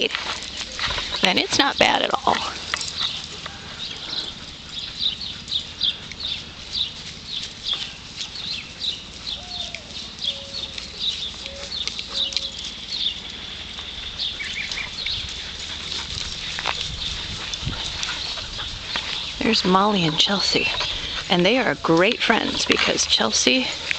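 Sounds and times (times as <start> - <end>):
small bird chirping: 2.9 - 19.6.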